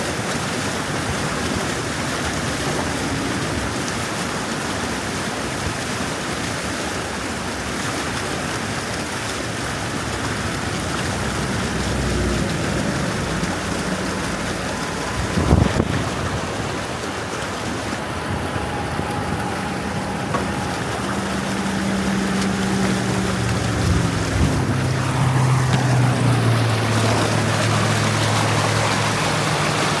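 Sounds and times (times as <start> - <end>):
steady rushing noise: 8.8 - 30.0
motor hum: 9.9 - 30.0.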